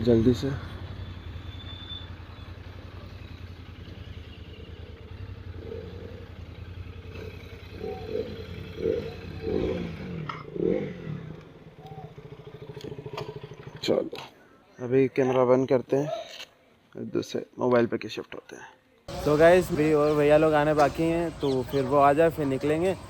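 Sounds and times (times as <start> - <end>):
motorcycle engine idling: 0.0 - 13.8, 19.1 - 23.0.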